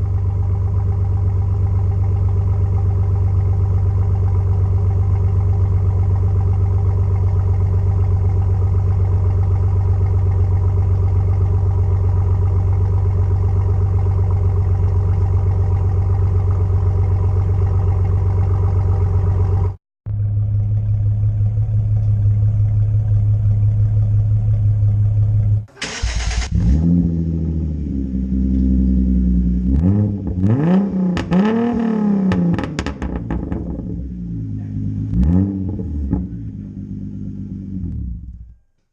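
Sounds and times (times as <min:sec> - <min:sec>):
engine idling: 0:00.0 - 0:38.7
engine revving: 0:25.4 - 0:38.4.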